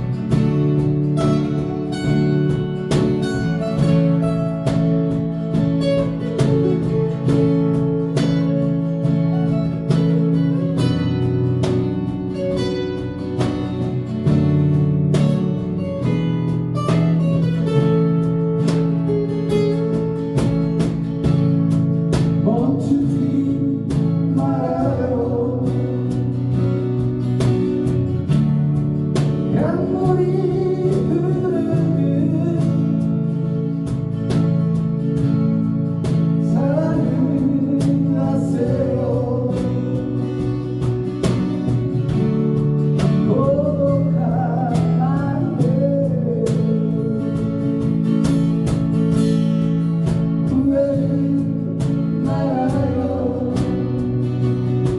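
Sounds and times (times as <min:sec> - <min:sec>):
acoustic guitar music: 0:00.0 - 0:54.9
person singing: 0:22.4 - 0:26.3, 0:29.5 - 0:33.1, 0:36.5 - 0:40.5, 0:50.4 - 0:54.2.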